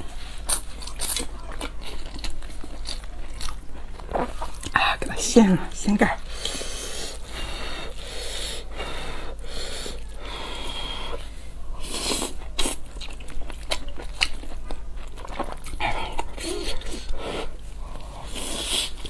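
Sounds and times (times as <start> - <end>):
wet chewing and smacking: 0.0 - 5.5, 12.1 - 19.0
breaths through the nose: 15.9 - 19.0.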